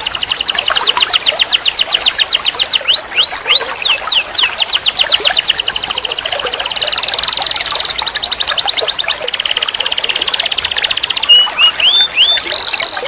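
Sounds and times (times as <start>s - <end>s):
canary singing trills: 0.0s - 13.0s.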